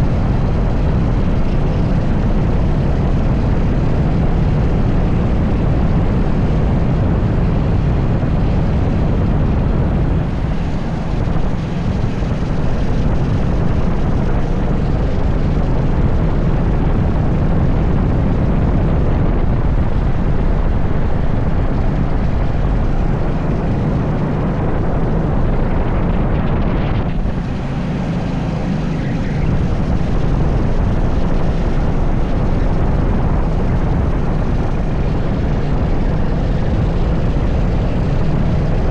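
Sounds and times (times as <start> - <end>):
racing kart engine running hard: 0.0 - 38.9
wind noise on microphone: 0.0 - 38.9.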